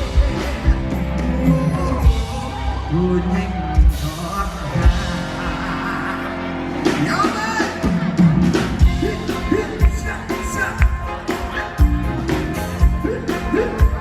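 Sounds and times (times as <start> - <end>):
steady drum beat: 0.0 - 2.6, 6.9 - 14.0
live band music: 0.0 - 14.0.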